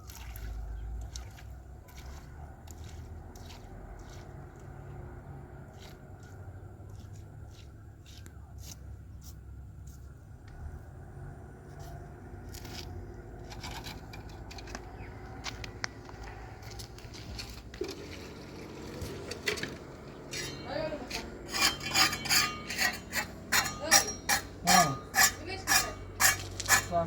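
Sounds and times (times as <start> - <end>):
rhythmic scraping strokes: 16.9 - 27.0.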